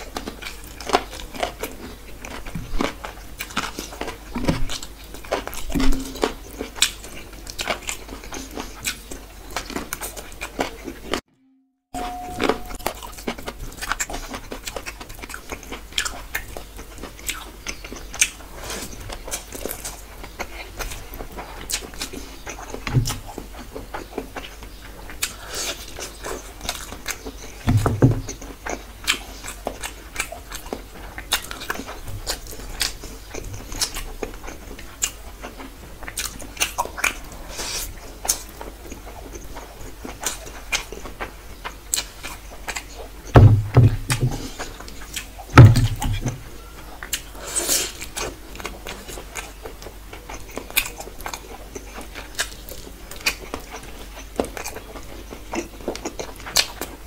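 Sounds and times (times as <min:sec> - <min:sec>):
close chewing mouth noises: 0:00.0 - 0:11.2, 0:13.0 - 0:43.4, 0:44.0 - 0:57.0
dull low thump: 0:43.4 - 0:44.5, 0:45.6 - 0:46.4.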